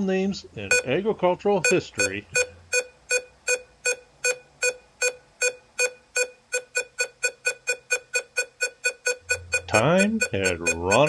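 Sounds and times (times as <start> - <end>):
faint low hum: 0.0 - 2.7
electronic clock ticks: 1.6 - 11.0.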